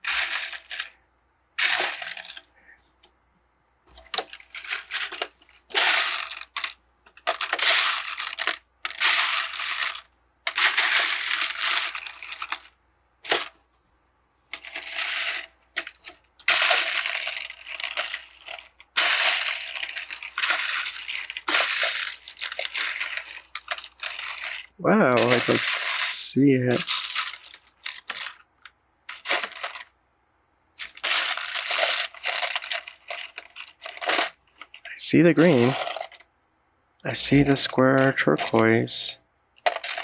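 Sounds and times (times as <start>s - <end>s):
plastic pieces clattering: 0.0s - 1.0s, 1.6s - 2.5s, 3.9s - 13.6s, 14.5s - 29.9s, 30.8s - 36.2s, 37.1s - 40.0s.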